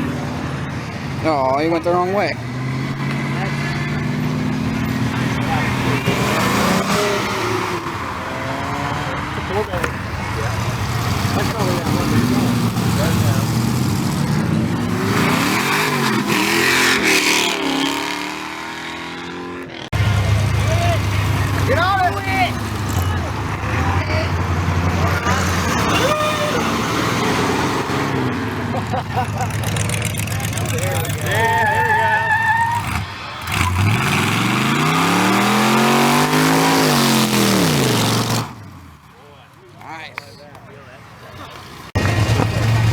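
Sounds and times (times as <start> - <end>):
car engine revving: 0.0 - 39.1, 41.4 - 42.9.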